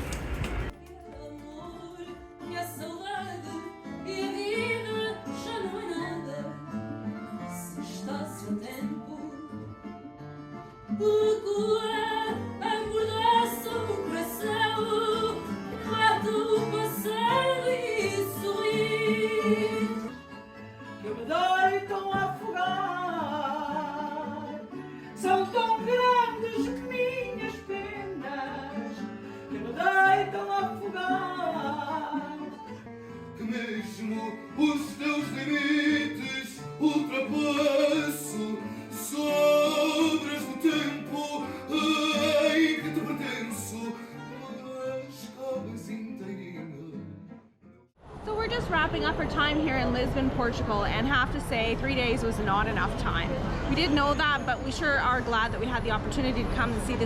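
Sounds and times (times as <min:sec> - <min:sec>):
plucked guitar: 0:00.6 - 0:47.8
person singing with vibrato: 0:11.1 - 0:20.2, 0:20.8 - 0:32.7, 0:33.4 - 0:46.6.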